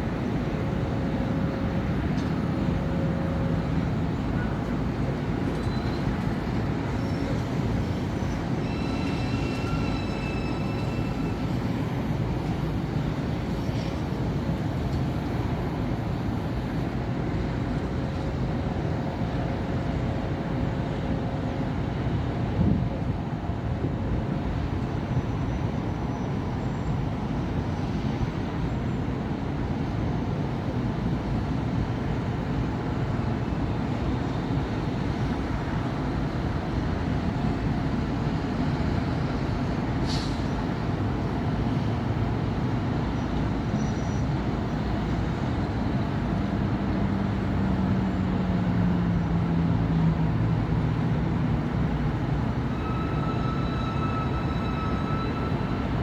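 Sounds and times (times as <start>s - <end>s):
city traffic rumble: 0.0s - 56.0s
brief high squeak: 7.0s - 11.6s, 43.8s - 44.3s, 52.7s - 56.0s.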